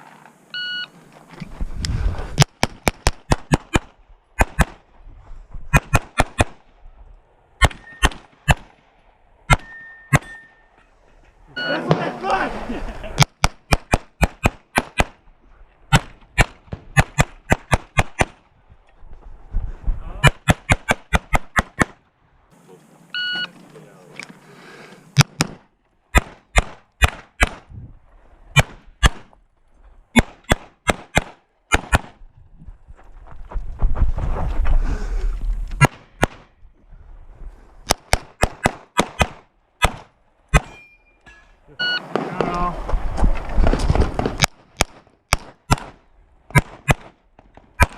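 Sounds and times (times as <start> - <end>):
low rumbling movement noise: 0.0 - 2.4, 18.4 - 20.2, 32.2 - 35.8
rapid pistol shots: 2.4 - 4.8, 5.7 - 6.6, 7.6 - 8.8, 9.5 - 10.4, 13.2 - 15.2, 15.9 - 18.4, 20.2 - 22.0, 25.2 - 27.7, 28.5 - 29.3, 30.2 - 32.2, 37.9 - 40.8, 44.1 - 47.2.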